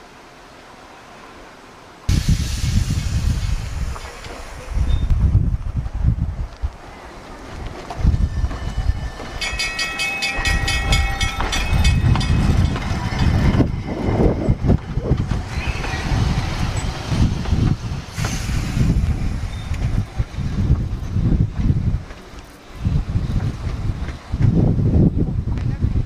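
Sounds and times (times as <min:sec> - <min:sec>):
train rumbling on rails: 0:00.0 - 0:26.0
rapid ringing: 0:09.2 - 0:13.4.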